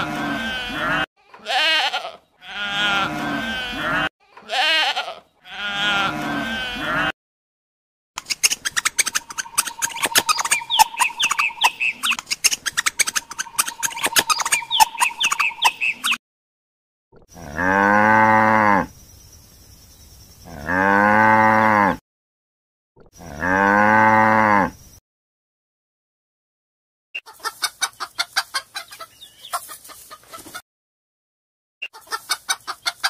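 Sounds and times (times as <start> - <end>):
cattle mooing: 0.0 - 7.1, 23.2 - 24.7.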